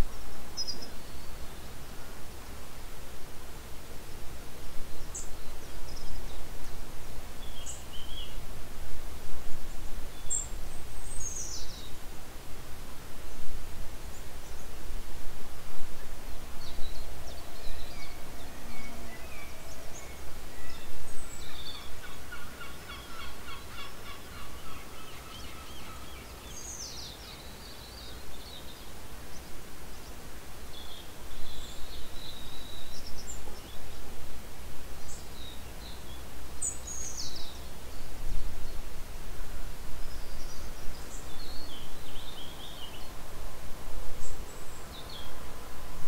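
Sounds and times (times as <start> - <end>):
low background noise: 0.0 - 46.0.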